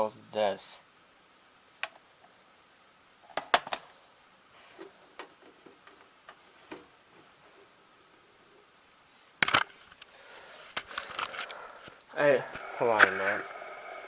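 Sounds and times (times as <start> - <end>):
clicks and knocks of video cassette: 3.3 - 3.9, 9.4 - 10.1.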